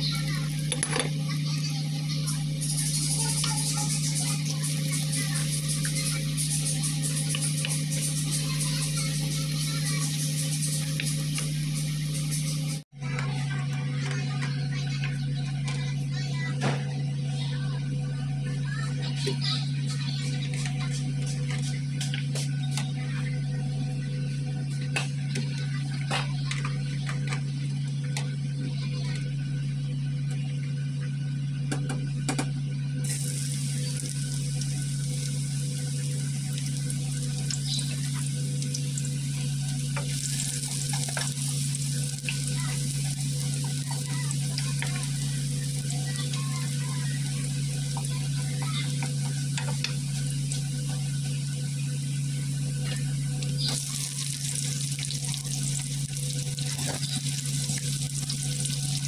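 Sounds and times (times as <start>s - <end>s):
garlic sizzling in hot oil: 0.0s - 12.8s, 33.0s - 59.0s
steady low hum: 0.0s - 59.0s.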